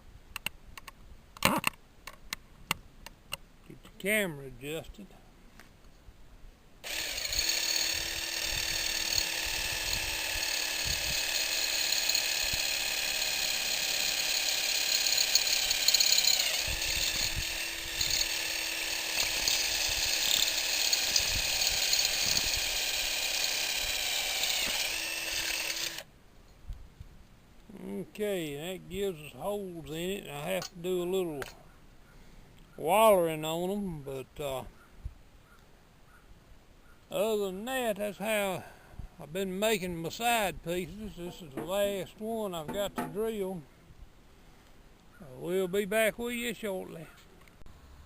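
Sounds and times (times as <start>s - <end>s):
electric drill drilling through wood: 6.8s - 26.1s.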